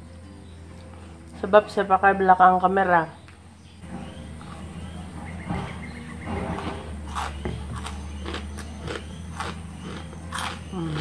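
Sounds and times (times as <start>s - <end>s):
wet crunchy chewing: 6.4s - 11.0s.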